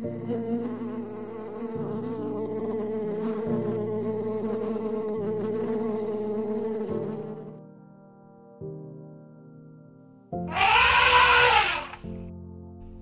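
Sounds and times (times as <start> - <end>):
bees buzzing: 0.0 - 7.5.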